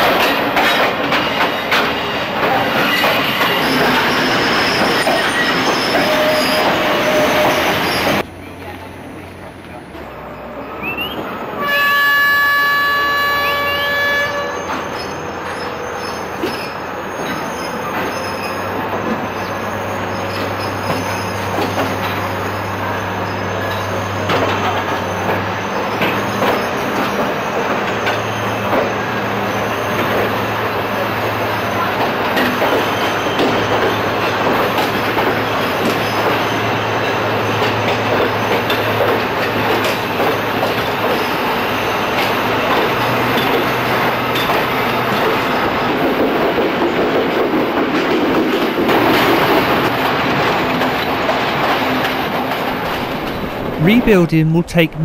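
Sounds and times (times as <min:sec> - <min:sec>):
wheels clicking over rail joints: 0:00.0 - 0:08.8, 0:31.2 - 0:53.8
train engine drone: 0:00.0 - 0:55.0
train horn blast: 0:11.6 - 0:14.8.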